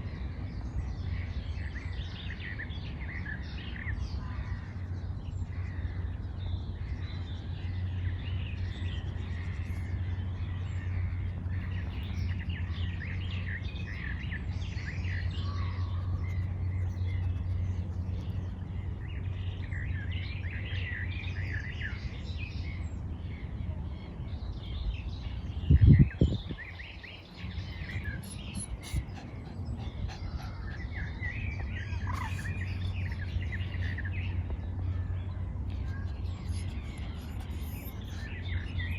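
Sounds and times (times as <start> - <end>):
birds chirping and singing: 0.0 - 38.9
steady low rumble: 0.0 - 38.9.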